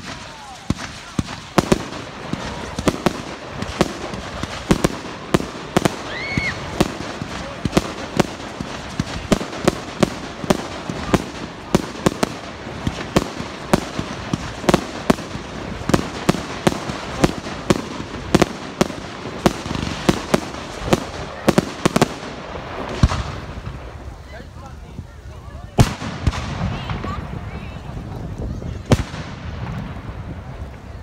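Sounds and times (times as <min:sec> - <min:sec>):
crackle of bursting shells: 0:00.0 - 0:23.7
fireworks sharp bangs: 0:00.0 - 0:24.1, 0:25.8 - 0:31.0.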